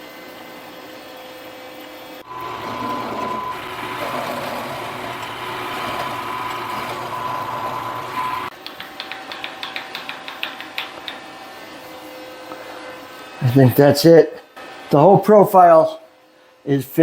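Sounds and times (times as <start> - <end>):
end mill cutting metal: 2.3 - 8.5
milling machine whine: 2.3 - 8.5.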